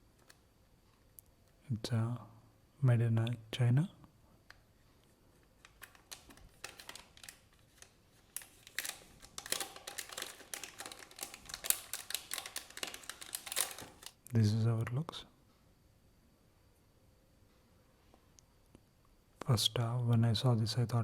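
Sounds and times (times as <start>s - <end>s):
plastic and card crinkling: 5.4s - 14.2s.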